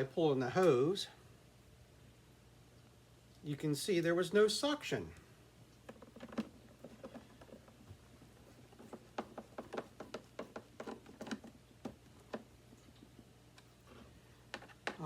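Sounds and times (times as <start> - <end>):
faint low hum: 0.0 - 15.0
clicks of plastic vacuum parts: 8.8 - 12.5.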